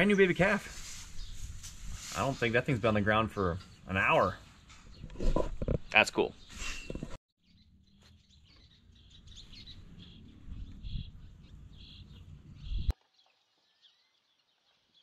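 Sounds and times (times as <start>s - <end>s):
small birds chirping: 0.0s - 15.0s
wind rumble on microphone: 9.3s - 12.9s.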